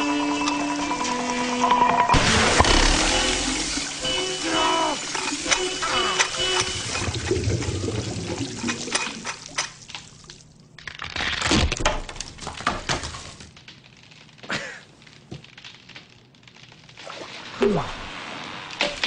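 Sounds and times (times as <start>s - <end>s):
water splashing and pouring: 1.0s - 10.6s, 16.8s - 19.0s
clanks and breaking knocks: 11.2s - 14.4s.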